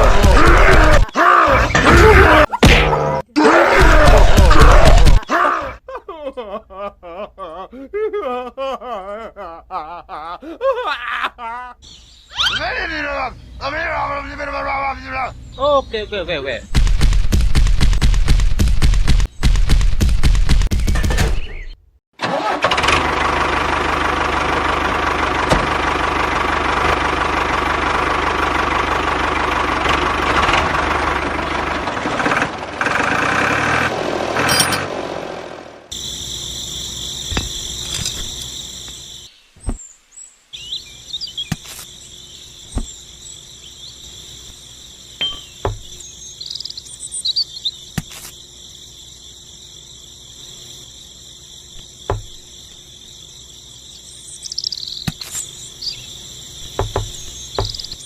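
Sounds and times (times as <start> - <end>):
insects chirping: 3.9 - 17.8, 35.4 - 58.0.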